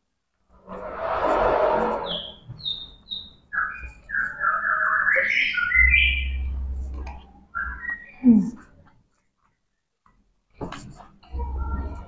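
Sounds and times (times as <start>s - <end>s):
low hum: 0.5s - 2.5s
short burst of noise: 0.6s - 2.4s
bird chirping and whistling: 2.0s - 6.5s, 7.5s - 8.3s.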